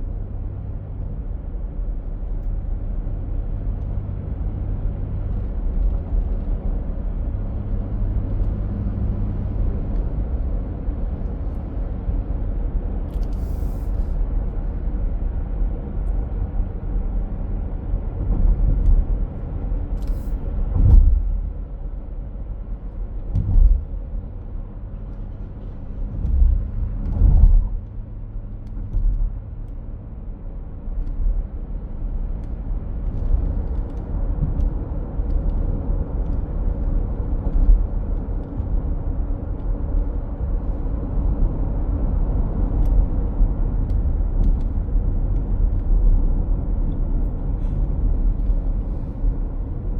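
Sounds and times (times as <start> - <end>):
low thumps: 20.7 - 21.6, 23.3 - 24.2, 26.1 - 27.8.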